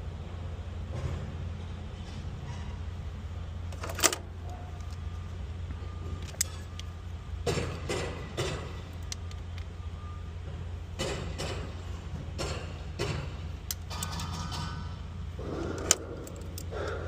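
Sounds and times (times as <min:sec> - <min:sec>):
steady low hum: 0:00.0 - 0:17.0
tool clicks: 0:12.4 - 0:14.7.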